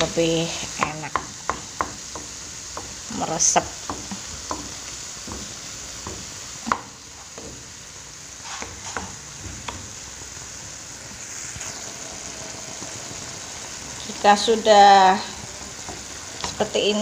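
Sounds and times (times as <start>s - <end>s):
food sizzling in a pan: 0.0s - 17.0s
wooden spatula scraping pan: 8.4s - 9.8s.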